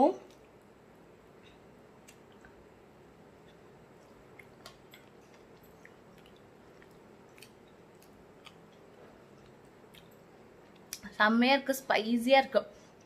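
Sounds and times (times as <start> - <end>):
faint chewing: 1.4 - 2.6, 3.3 - 11.1.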